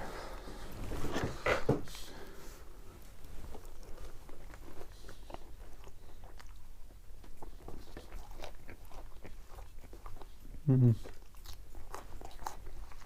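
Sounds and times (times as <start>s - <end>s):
person chewing food: 3.0s - 13.0s.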